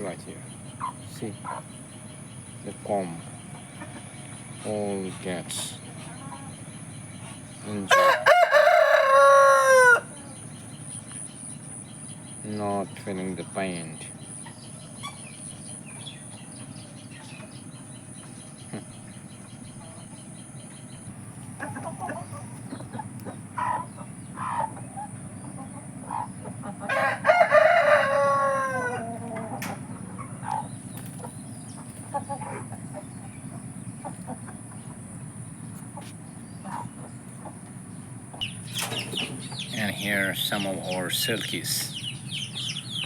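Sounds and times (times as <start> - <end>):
hens clucking: 0.0 - 43.0
rooster crowing: 7.8 - 10.3, 26.8 - 30.6.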